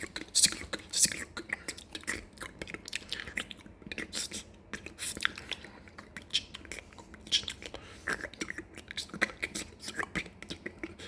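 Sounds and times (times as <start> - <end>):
wet mouth clicks and smacks: 0.0 - 11.0.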